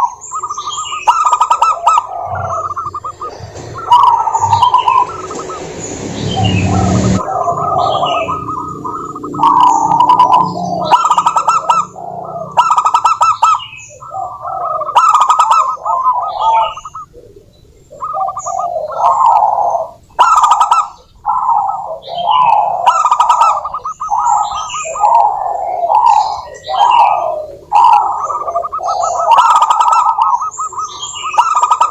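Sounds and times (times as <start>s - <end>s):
higher chirping notes: 0.0s - 17.1s
doves calling: 0.0s - 31.9s.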